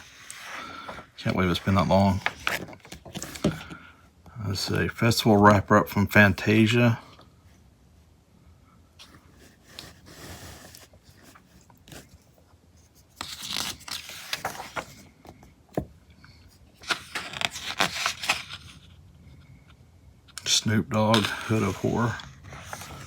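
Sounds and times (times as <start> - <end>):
magazine pages rustling: 0.0 - 3.8, 9.1 - 15.9, 16.7 - 18.9, 20.4 - 23.0.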